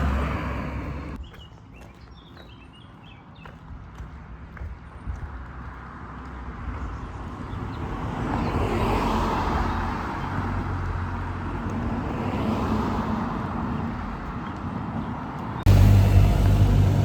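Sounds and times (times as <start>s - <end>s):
cars passing: 0.0s - 1.2s, 3.6s - 17.0s
low engine hum: 0.0s - 1.3s, 3.9s - 17.0s.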